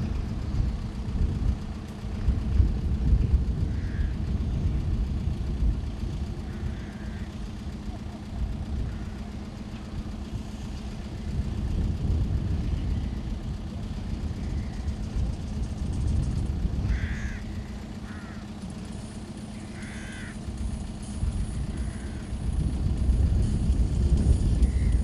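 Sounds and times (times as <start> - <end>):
constant low hum: 0.0 - 25.0
low outdoor rumble: 0.0 - 25.0
bird giving harsh calls: 16.9 - 18.4, 19.6 - 20.4.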